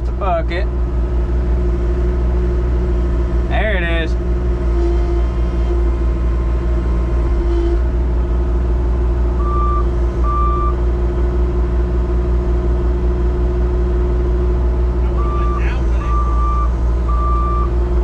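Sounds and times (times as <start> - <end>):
heavy engine running: 0.0 - 18.0
backup alarm beeps: 9.4 - 10.8, 15.1 - 17.7.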